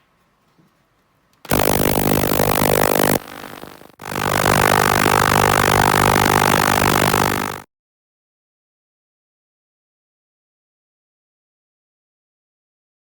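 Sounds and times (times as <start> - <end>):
workshop machine humming: 1.5 - 7.6.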